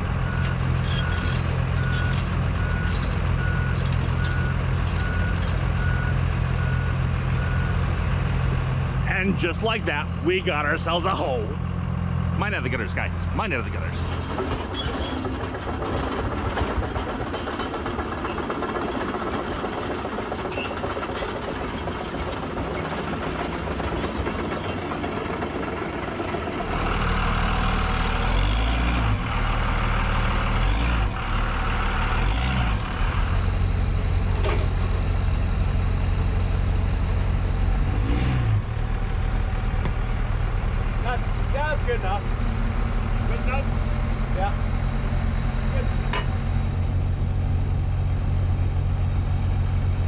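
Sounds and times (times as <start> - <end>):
excavator diesel engine running: 0.0 - 50.0
metal clank: 34.2 - 35.0, 46.1 - 46.5.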